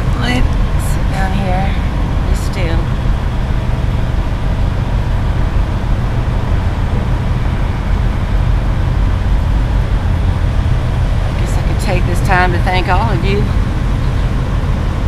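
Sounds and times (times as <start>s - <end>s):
road traffic rumble: 0.0s - 15.0s
truck engines idling: 0.0s - 15.0s.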